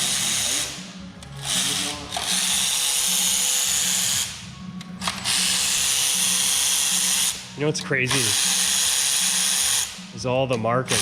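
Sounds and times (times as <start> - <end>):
power tool bursts: 8.1 - 10.0.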